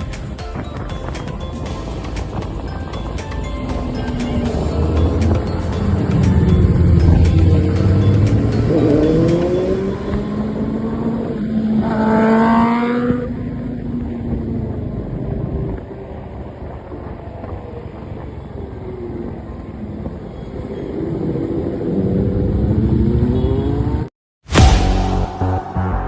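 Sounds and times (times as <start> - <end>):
motorcycle engine revving: 4.0 - 14.8.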